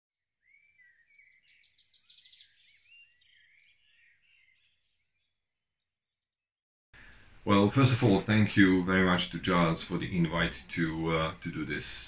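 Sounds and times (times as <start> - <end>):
birds chirping and trilling: 0.4 - 6.2, 7.0 - 10.6.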